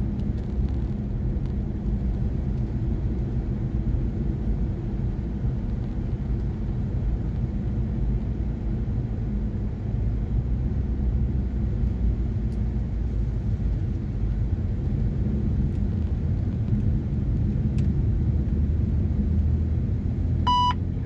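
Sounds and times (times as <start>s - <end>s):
car engine and tyre drone: 0.0s - 21.0s
short electronic beep: 20.5s - 20.8s.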